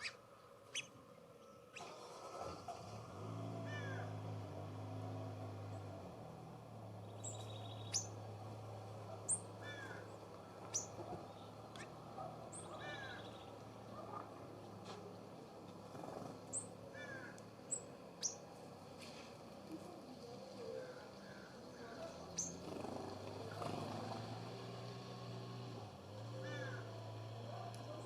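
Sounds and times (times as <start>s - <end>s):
songbirds chirping: 0.0s - 28.0s
low rising bird calls: 9.1s - 13.6s.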